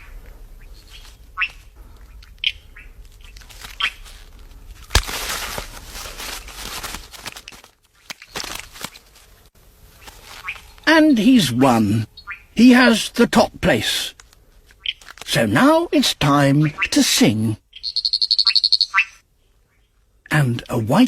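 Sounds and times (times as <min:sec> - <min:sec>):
frogs chirping: 0:00.0 - 0:04.0, 0:09.9 - 0:14.2, 0:14.8 - 0:19.9.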